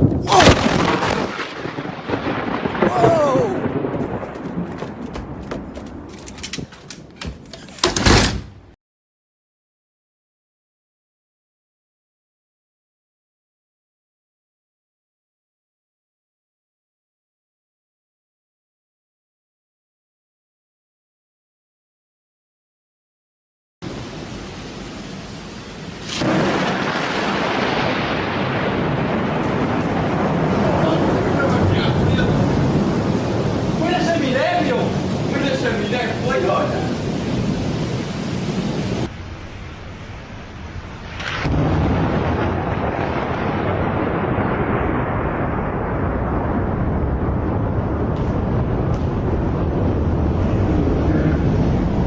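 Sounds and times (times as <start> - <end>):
thunder crack and rumble: 0.0 - 7.2, 26.0 - 52.0
steady rain: 0.0 - 7.9, 23.8 - 52.0.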